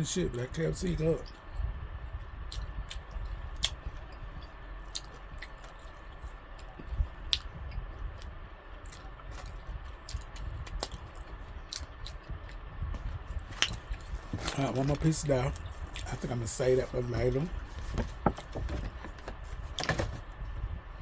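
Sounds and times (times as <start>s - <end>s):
person chewing food: 2.4s - 14.6s.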